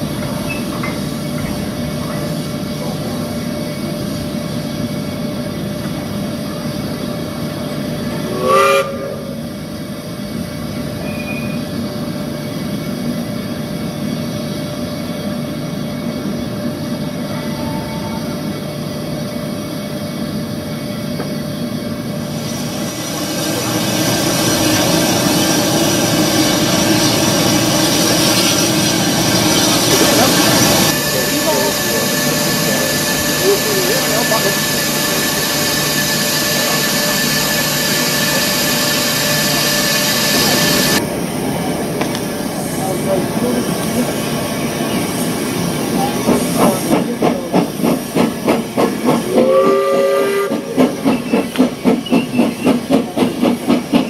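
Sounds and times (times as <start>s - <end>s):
goods train rumbling and clattering: 0.0s - 54.0s
steam whistle blast: 8.2s - 9.4s, 49.3s - 50.6s.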